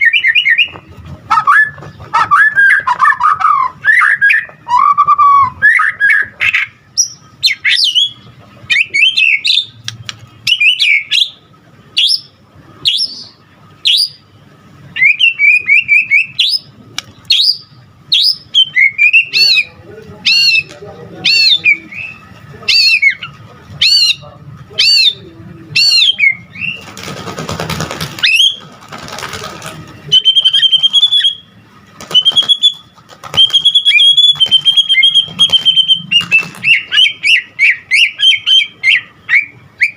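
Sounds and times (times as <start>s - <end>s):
bird singing whistled phrases: 0.0s - 9.7s, 15.0s - 16.7s, 17.3s - 24.2s, 30.1s - 31.5s, 32.1s - 39.9s.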